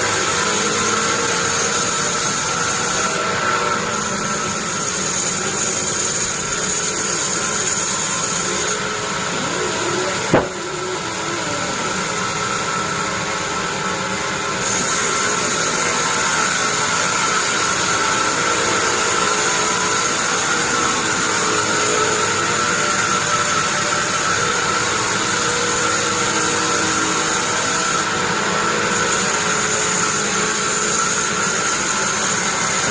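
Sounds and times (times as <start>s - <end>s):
bandsaw whining: 0.0s - 32.9s
sharp knock: 10.3s - 10.7s.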